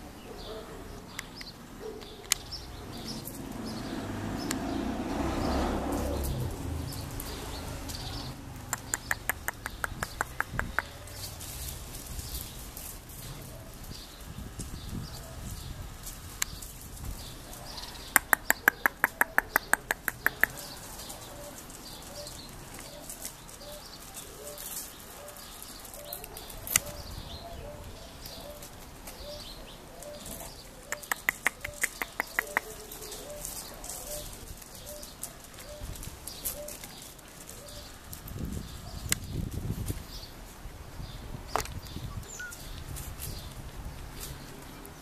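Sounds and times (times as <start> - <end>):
birds calling: 0.0 - 45.0
sharp rapid clicks: 8.6 - 11.0, 18.1 - 20.7, 31.0 - 32.7.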